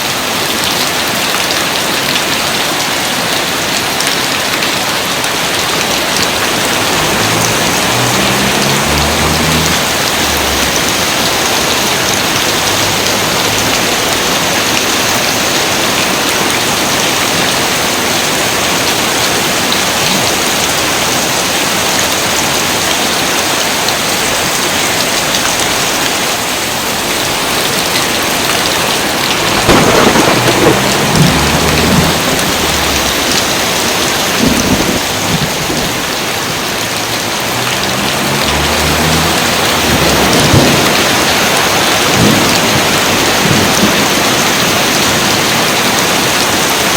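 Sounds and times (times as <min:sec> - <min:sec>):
dense rain falling: 0:00.0 - 0:46.9
thunder rumbling low: 0:05.8 - 0:14.8, 0:28.8 - 0:36.2, 0:38.2 - 0:44.3.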